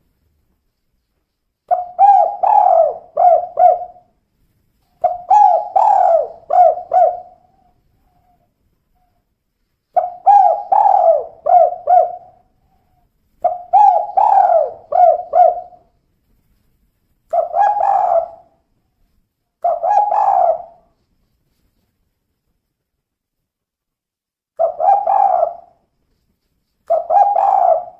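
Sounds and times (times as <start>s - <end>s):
dove cooing: 1.7s - 4.1s, 5.0s - 9.1s, 10.0s - 15.9s, 17.3s - 18.6s, 19.6s - 20.9s, 24.6s - 25.8s, 26.9s - 27.9s.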